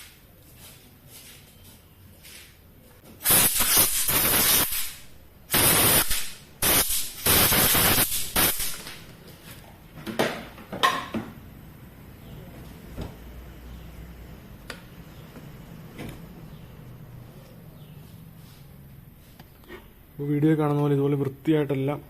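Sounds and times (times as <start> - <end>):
pressurised spray hissing: 3.2 - 9.0.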